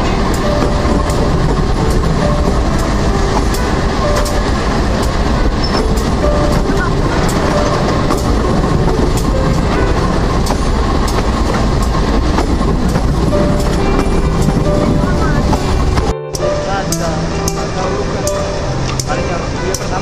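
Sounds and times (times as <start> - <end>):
wheel clicks over rail joints: 0.0 - 17.6
electric train rumbling on track: 0.0 - 20.0.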